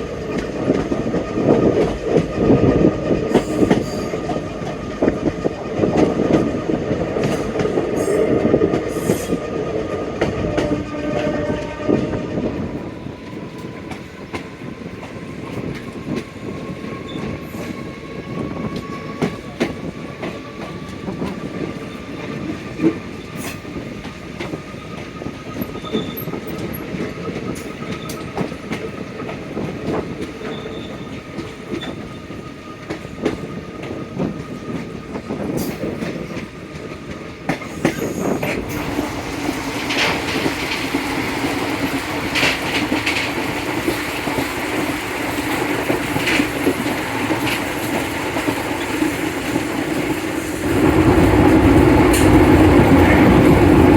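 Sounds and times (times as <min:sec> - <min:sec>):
passenger train running: 0:00.0 - 0:53.9
train wheels clicking over rail joints: 0:00.0 - 0:53.9.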